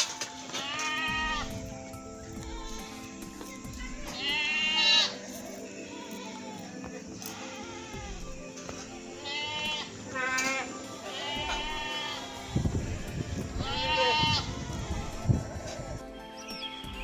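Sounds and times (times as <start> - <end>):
background music: 0.0 - 17.0
goat bleating: 0.5 - 1.5, 4.0 - 5.2, 7.3 - 8.3, 9.2 - 12.6, 13.2 - 15.8.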